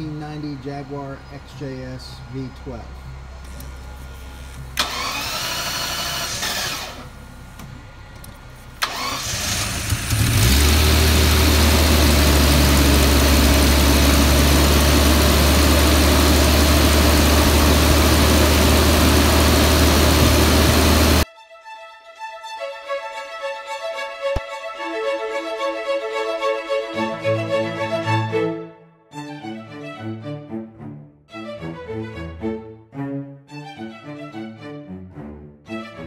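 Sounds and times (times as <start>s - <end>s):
starter cranking: 4.8s - 7.1s, 8.8s - 11.0s
car engine idling loudly: 8.8s - 21.2s.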